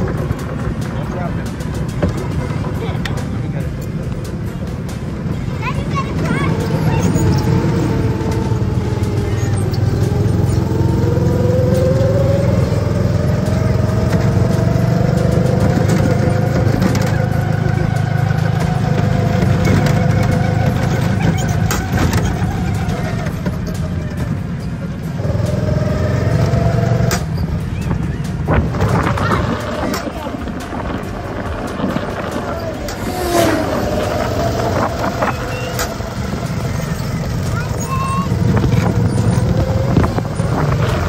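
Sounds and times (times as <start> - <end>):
go-kart engine running: 0.0 - 41.0.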